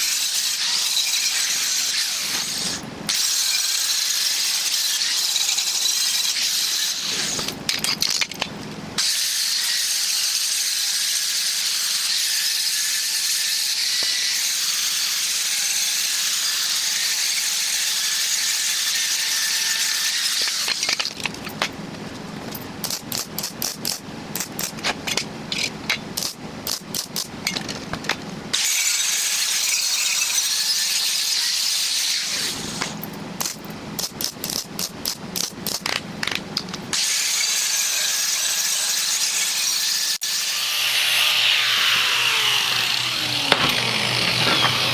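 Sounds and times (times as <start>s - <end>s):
angle grinder on steel: 0.0s - 7.6s, 37.0s - 44.9s.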